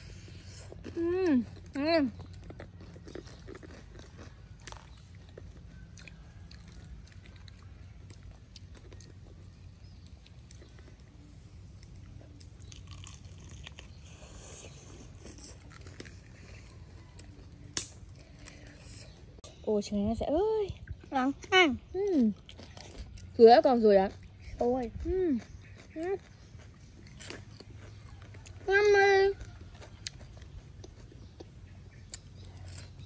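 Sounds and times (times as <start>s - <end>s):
chewing crispy fried chicken: 0.0s - 19.4s, 20.6s - 33.0s.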